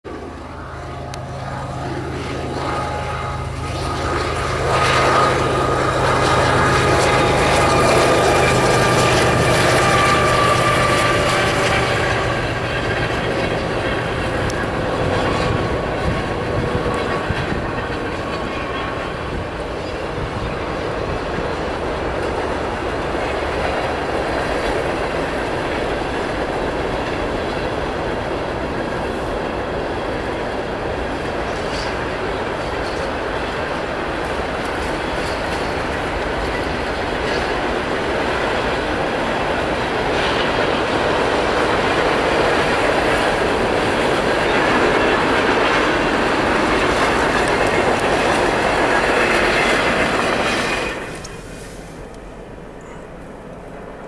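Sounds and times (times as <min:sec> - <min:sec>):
diesel locomotive hum: 0:00.0 - 0:54.0
freight cars rumbling and clattering: 0:00.0 - 0:54.0
high ringing tones: 0:00.2 - 0:12.0.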